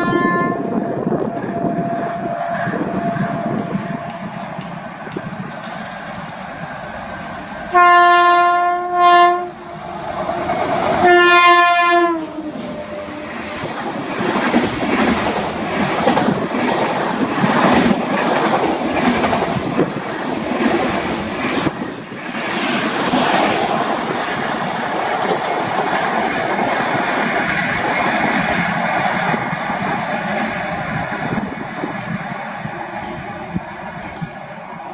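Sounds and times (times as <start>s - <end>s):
train horn blasts: 0.0s - 6.2s, 6.8s - 13.8s
train wheels clattering over rails: 1.2s - 7.7s, 12.5s - 34.9s.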